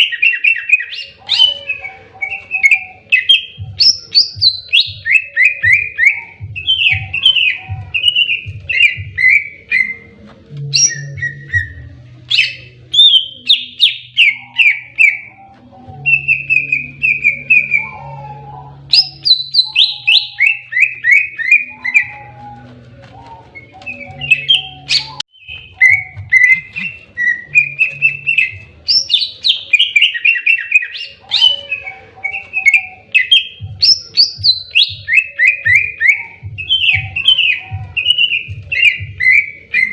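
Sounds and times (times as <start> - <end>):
bird singing sharp runs: 0.0 - 15.4, 18.9 - 39.9.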